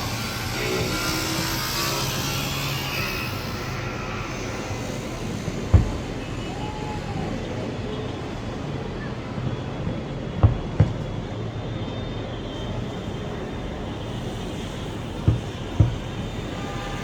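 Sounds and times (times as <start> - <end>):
fireworks booming: 3.3 - 8.6, 9.3 - 11.8, 14.2 - 17.0.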